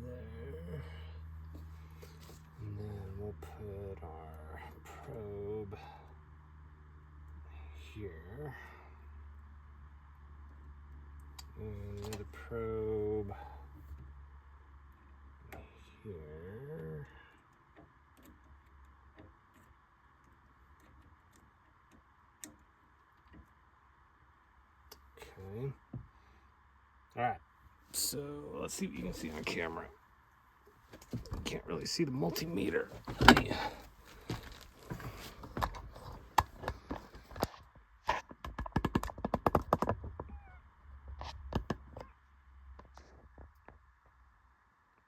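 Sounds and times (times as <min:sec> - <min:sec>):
faint steady hum: 0:00.0 - 0:38.6
handling clicks and knocks: 0:30.8 - 0:31.7, 0:32.3 - 0:40.2
faint squeak: 0:40.3 - 0:40.6.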